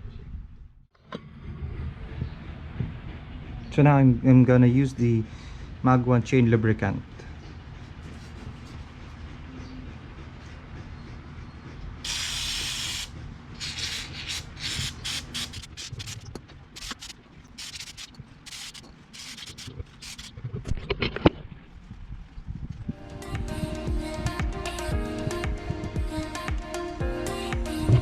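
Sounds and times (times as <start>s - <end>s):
aerosol can spraying: 12.1s - 20.3s.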